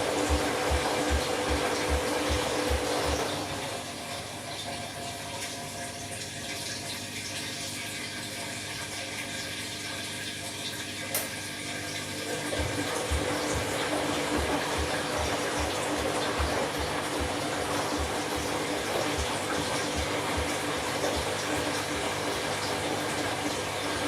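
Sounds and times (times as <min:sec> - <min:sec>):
washing machine drum thumping: 0:00.0 - 0:03.4, 0:12.4 - 0:24.0
water rushing in washing machine: 0:00.0 - 0:24.0
small click: 0:11.1 - 0:11.4.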